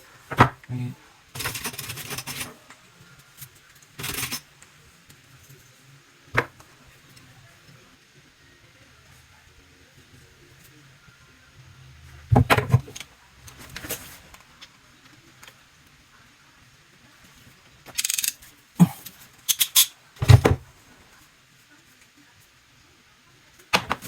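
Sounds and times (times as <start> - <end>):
tools clattering and clicking: 1.4 - 2.6, 4.0 - 4.4, 17.9 - 20.6.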